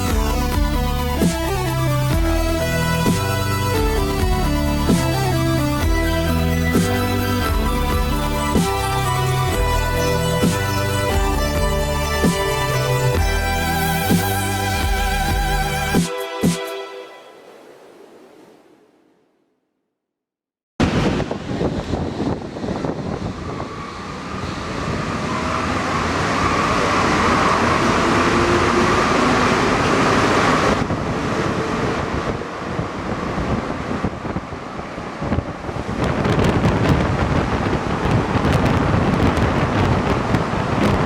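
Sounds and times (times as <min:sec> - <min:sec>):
train running noise: 0:20.8 - 0:41.0
train whine: 0:20.8 - 0:41.0.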